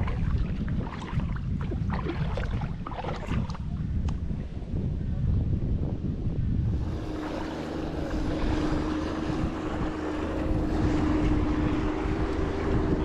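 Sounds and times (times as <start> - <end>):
wind buffeting microphone: 0.0 - 13.0
steady hum: 6.1 - 13.0.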